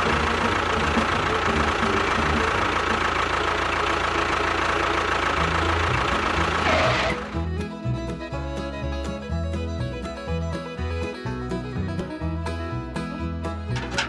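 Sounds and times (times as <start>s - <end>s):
small motor whining: 0.0s - 7.5s.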